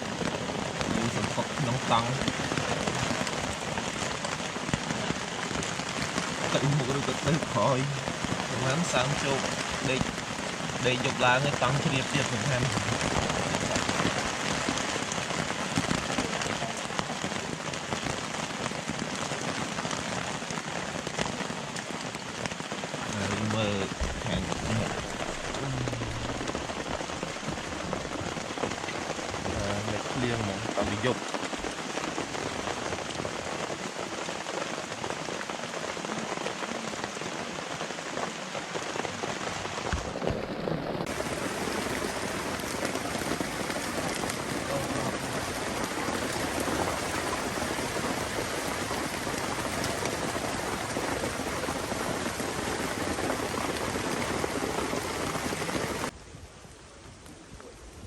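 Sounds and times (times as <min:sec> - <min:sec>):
light rain falling: 0:00.0 - 0:58.0
soft low knocks: 0:23.9 - 0:26.3.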